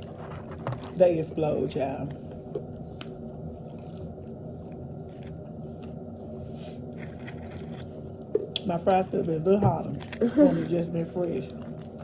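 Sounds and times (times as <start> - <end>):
steady low hum: 0.0 - 12.0
person chewing: 3.0 - 8.7.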